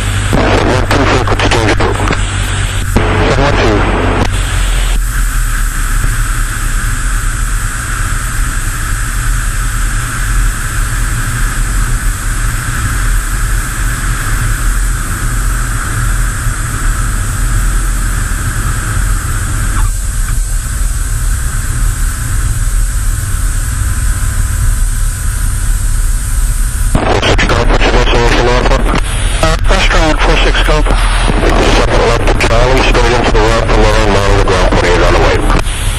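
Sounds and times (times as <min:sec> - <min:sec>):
light aircraft engine droning: 0:00.0 - 0:35.9
wind noise rushing: 0:30.7 - 0:32.9.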